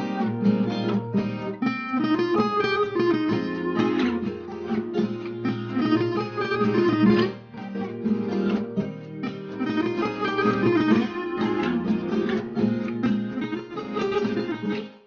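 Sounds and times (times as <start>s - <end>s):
plucked acoustic guitar melody: 0.0s - 15.0s.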